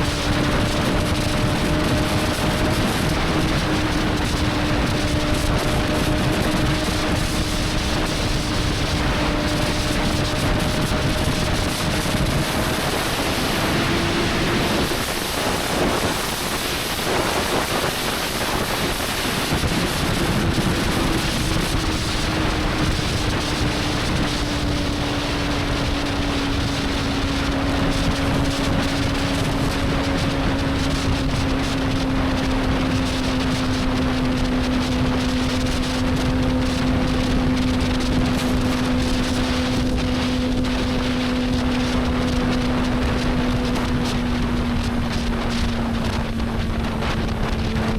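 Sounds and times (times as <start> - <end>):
motorcycle engine cruising: 0.0 - 47.9
wind rush: 0.0 - 47.9.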